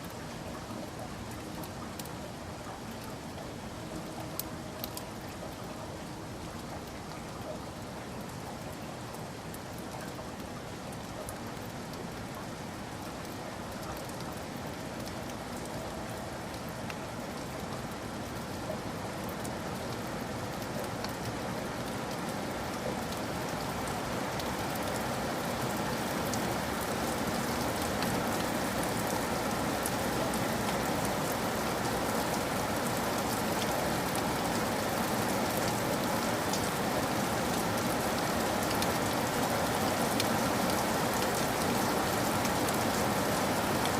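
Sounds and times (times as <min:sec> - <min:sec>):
raindrop ticks: 0:00.0 - 0:43.9
steady rain on surfaces: 0:00.0 - 0:43.9.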